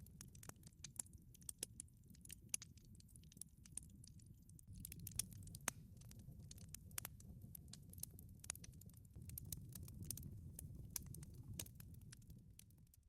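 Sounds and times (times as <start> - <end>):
fire crackling and popping: 0.0 - 13.0
flames rumbling: 4.7 - 13.0.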